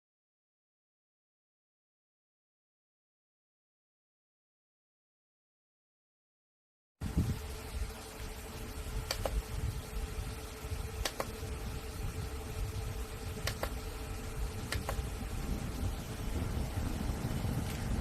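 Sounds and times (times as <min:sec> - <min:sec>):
desk fan running: 0:07.0 - 0:18.0
sharp clicks: 0:09.0 - 0:09.4, 0:11.0 - 0:11.5, 0:13.4 - 0:13.8, 0:14.6 - 0:15.1.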